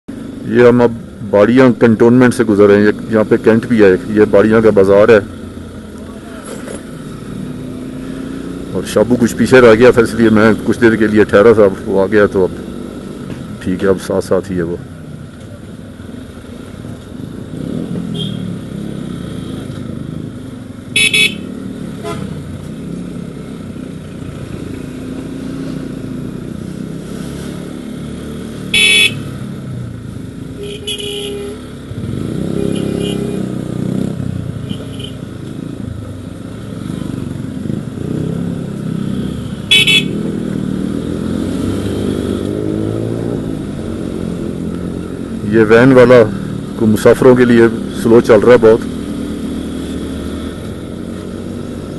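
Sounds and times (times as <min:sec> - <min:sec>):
motorcycle engine running: 0:15.2 - 0:51.9
loud horn blasts: 0:18.1 - 0:18.5, 0:20.9 - 0:22.4, 0:28.7 - 0:29.3, 0:30.6 - 0:31.7, 0:32.4 - 0:33.5, 0:34.6 - 0:35.2, 0:39.7 - 0:40.3
faint horn toots: 0:21.0 - 0:22.4, 0:28.7 - 0:29.3, 0:30.6 - 0:31.8, 0:32.5 - 0:33.5, 0:39.7 - 0:40.2.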